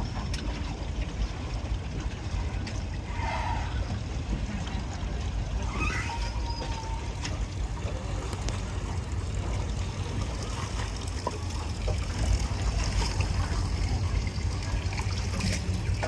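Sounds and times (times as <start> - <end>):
boat engine rumbling: 0.0 - 16.0
water gurgling along hull: 0.0 - 16.0.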